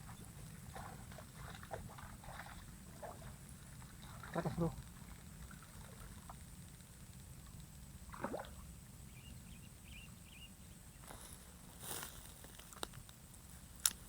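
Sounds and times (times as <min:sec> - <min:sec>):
water splash: 0:08.1 - 0:08.6.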